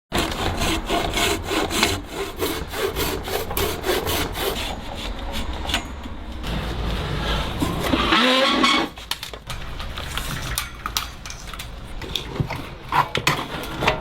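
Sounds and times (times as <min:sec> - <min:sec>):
hand saw cutting wood: 0:00.1 - 0:06.1, 0:07.2 - 0:09.2.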